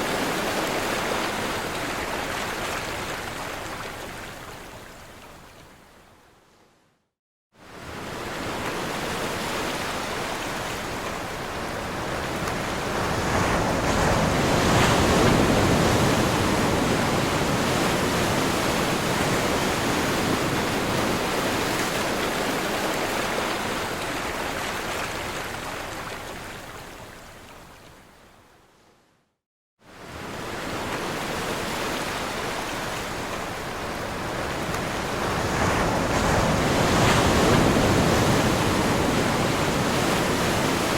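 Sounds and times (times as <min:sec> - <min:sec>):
ocean surf crashing: 0:08.1 - 0:24.2, 0:30.0 - 0:40.9.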